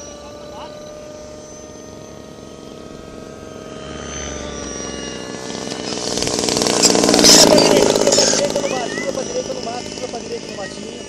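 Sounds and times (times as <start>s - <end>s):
model aircraft engine buzzing: 0.0s - 11.0s.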